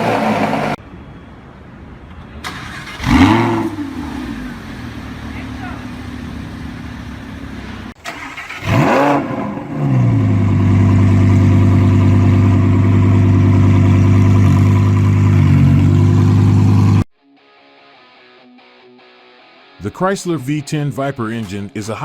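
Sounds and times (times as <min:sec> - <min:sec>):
car engine starting and idling: 0:00.0 - 0:00.8, 0:02.4 - 0:17.1.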